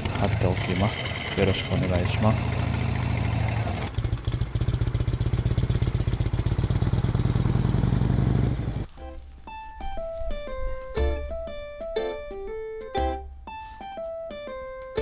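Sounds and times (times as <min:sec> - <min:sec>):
motorcycle engine pulsing: 0:00.0 - 0:09.0
plucked string music: 0:08.8 - 0:15.0.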